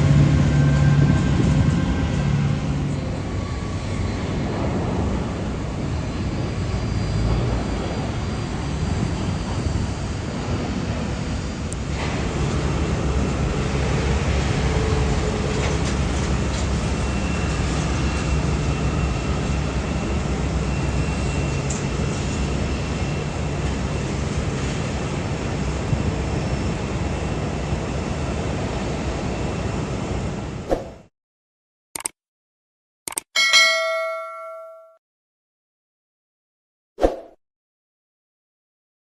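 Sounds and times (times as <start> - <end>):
large vehicle rumble: 0.0 - 30.5.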